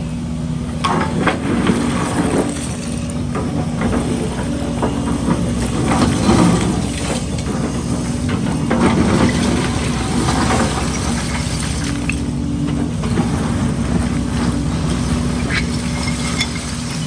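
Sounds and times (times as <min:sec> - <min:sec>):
diesel machinery engine drone: 0:00.0 - 0:17.0
metal knocks and clanks: 0:03.3 - 0:11.4.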